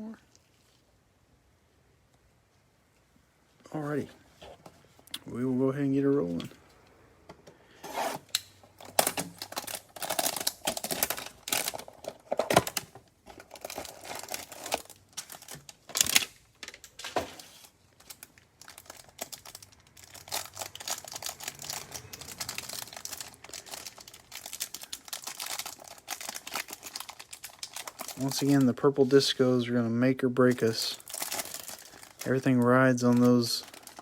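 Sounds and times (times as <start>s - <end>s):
plastic packaging ripping: 7.9s - 29.1s, 30.5s - 34.0s
plastic wrapper crinkling: 8.3s - 29.4s, 30.4s - 34.0s.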